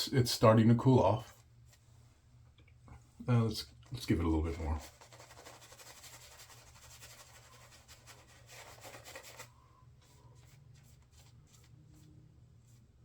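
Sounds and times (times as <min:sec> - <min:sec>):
shaving brush scrubbing lather: 0:04.0 - 0:09.6.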